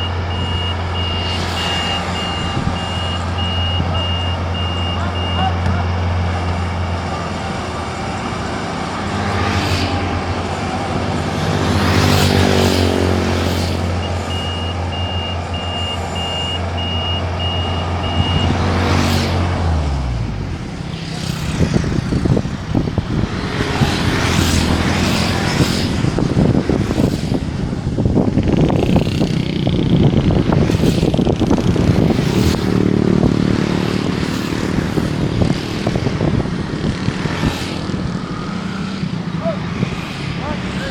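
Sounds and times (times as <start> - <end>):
pulsed beeping alarm: 0.0 - 5.6, 14.0 - 18.6
diesel engine drone: 0.0 - 40.9.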